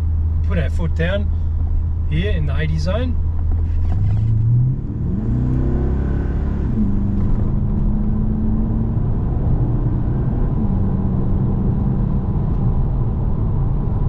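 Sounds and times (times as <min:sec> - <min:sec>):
car engine accelerating hard: 0:03.5 - 0:14.0.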